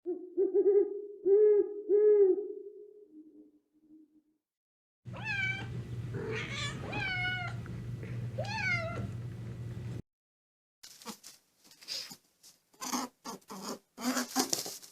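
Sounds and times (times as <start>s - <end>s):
kitten meowing: 5.1s - 7.6s, 8.4s - 9.1s
steady low hum: 5.1s - 10.0s.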